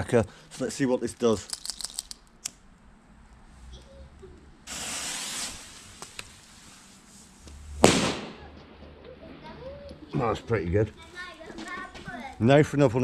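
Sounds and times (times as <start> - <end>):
firecracker fuse hissing: 4.6 - 8.5
firecracker bang: 4.7 - 5.8, 7.8 - 8.9.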